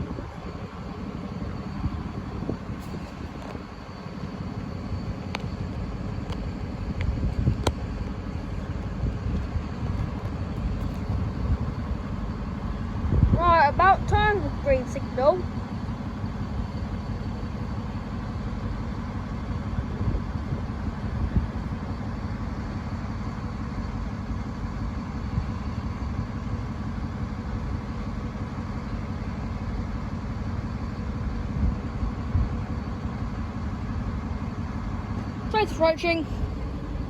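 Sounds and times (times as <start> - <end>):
engines idling: 0.0 - 37.0.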